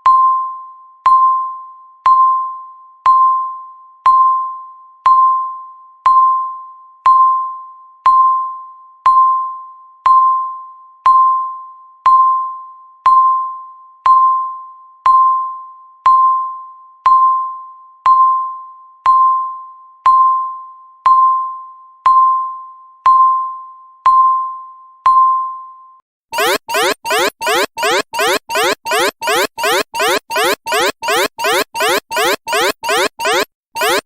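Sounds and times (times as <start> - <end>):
alarm with rising sweeps: 26.4 - 34.0
timer beeps: 26.4 - 34.0.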